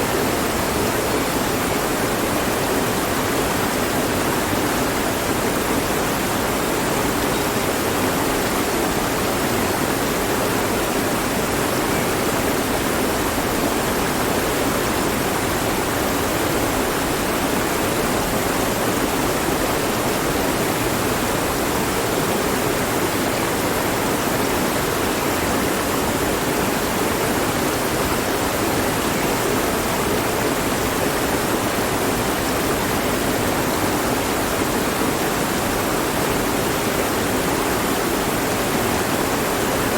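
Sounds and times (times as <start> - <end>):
mountain stream flowing: 0.0 - 39.9.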